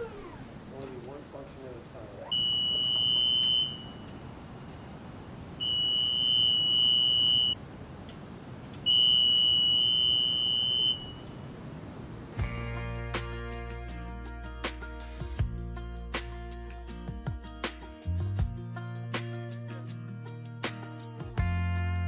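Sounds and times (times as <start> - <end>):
long high-pitched beeps: 2.3 - 4.2, 5.6 - 7.6, 8.9 - 11.3
music: 12.4 - 22.0.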